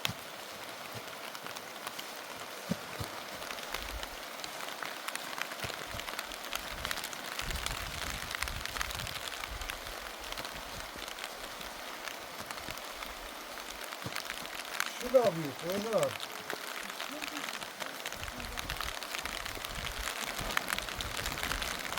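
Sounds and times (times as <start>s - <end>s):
heavy rain falling: 0.0s - 21.9s.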